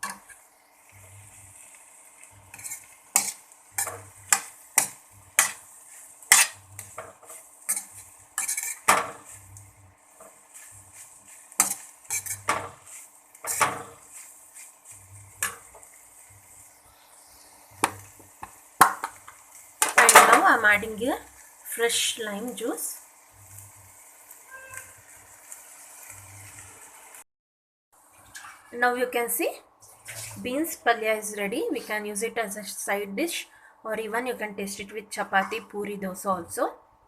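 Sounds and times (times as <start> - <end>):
spoon scraping and knocking pan: 0.0 - 0.4, 2.2 - 16.3, 17.8 - 20.8.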